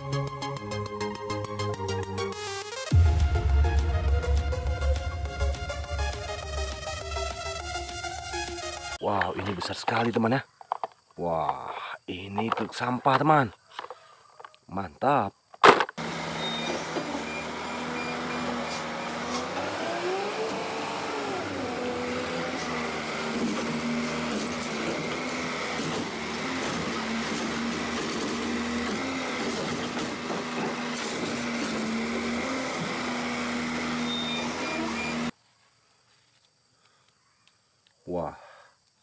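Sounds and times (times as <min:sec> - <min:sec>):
machine whine: 0:02.8 - 0:09.0, 0:16.0 - 0:35.3
garbage truck idling: 0:16.0 - 0:35.3.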